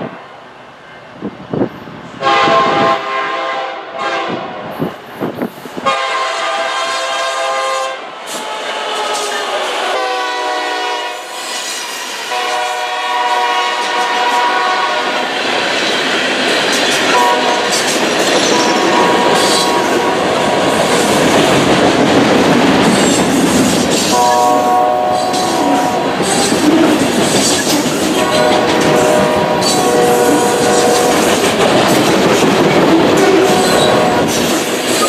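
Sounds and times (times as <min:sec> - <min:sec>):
train engine rumble: 0:00.0 - 0:35.0
train horn blasts: 0:02.2 - 0:04.7, 0:05.8 - 0:11.4, 0:12.3 - 0:15.3, 0:17.1 - 0:17.8, 0:18.4 - 0:20.5, 0:24.1 - 0:27.0, 0:27.7 - 0:31.6, 0:33.1 - 0:34.4
train wheel clatter: 0:11.4 - 0:35.0.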